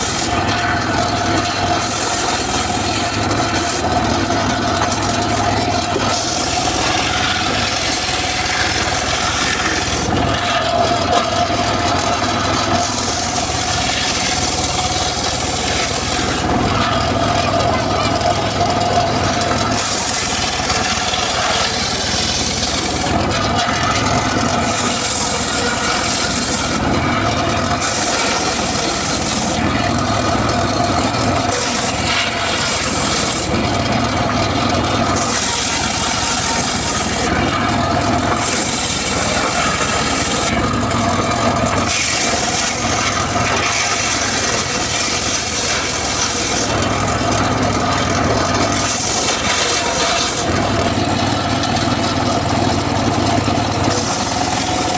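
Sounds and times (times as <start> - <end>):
circular saw whine: 0.0 - 54.9
saw blade hissing in wood: 19.7 - 22.8, 31.5 - 33.5, 35.2 - 37.3.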